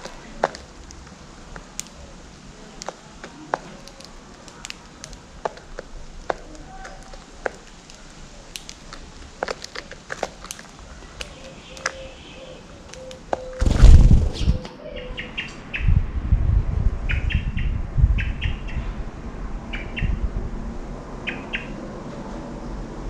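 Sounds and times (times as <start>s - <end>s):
birds pecking at seeds: 0.0s - 14.6s.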